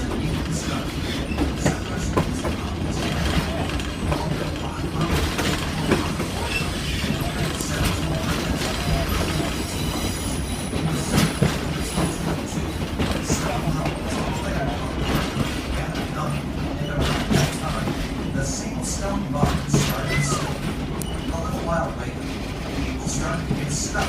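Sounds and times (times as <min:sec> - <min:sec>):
train rumbling on track: 0:00.0 - 0:24.0
train wheels clacking: 0:00.0 - 0:24.0
high wheel squeal: 0:05.7 - 0:12.3, 0:19.7 - 0:21.8.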